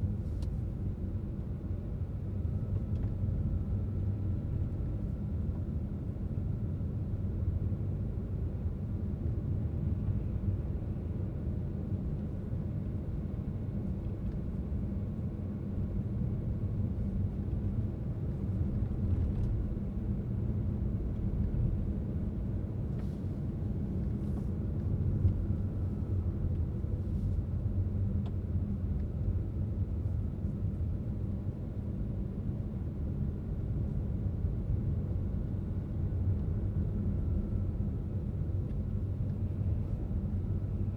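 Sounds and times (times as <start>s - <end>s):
car driving on road: 11.8s - 40.9s.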